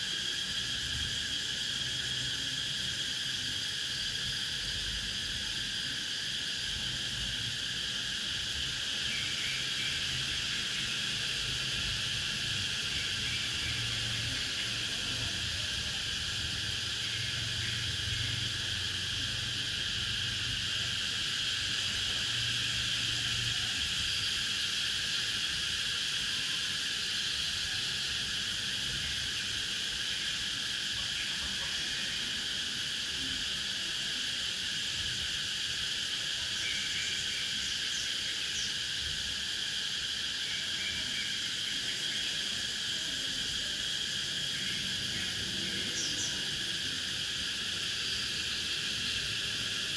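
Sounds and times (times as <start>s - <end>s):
cicadas droning: 0.0s - 49.9s.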